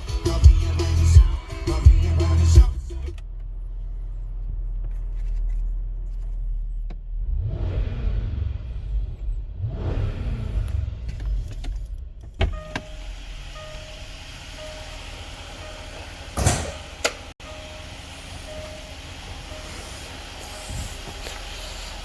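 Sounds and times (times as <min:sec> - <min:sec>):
car low rumble: 0:00.0 - 0:22.0
click: 0:17.0 - 0:17.2.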